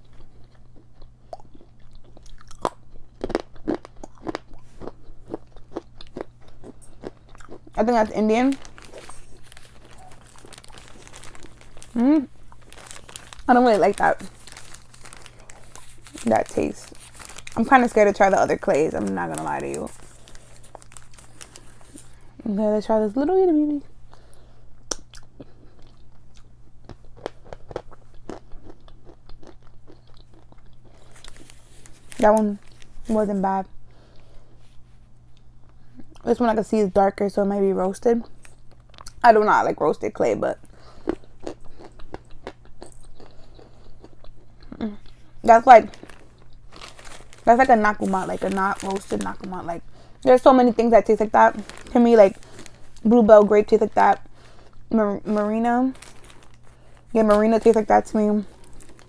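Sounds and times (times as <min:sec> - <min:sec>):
crisp chewing crunches: 0:00.0 - 0:22.3, 0:24.1 - 0:33.3, 0:38.2 - 0:39.2, 0:40.6 - 0:50.4, 0:51.1 - 0:59.0.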